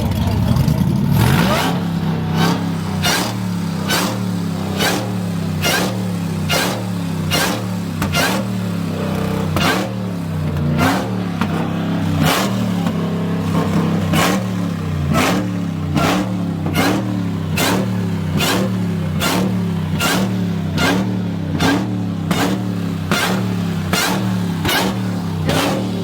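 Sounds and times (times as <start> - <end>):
car engine blipping: 0.0 - 26.0
sharp exhaust pops: 0.0 - 26.0.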